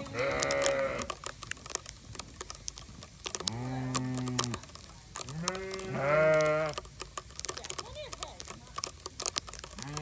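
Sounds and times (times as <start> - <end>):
farm animal low calls: 0.0 - 1.2, 3.4 - 6.9, 9.8 - 10.0
light ticks: 0.0 - 10.0.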